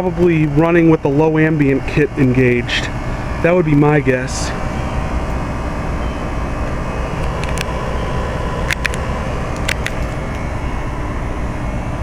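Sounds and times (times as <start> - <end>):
compressor humming: 0.0 - 12.0
sharp ticks: 8.6 - 10.4.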